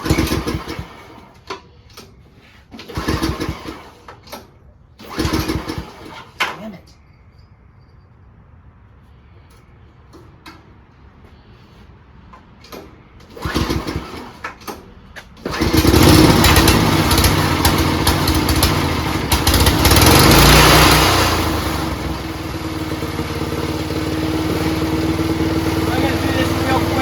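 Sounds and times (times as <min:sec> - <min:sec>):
lawn tractor engine starting: 0:00.0 - 0:06.8, 0:12.6 - 0:27.0.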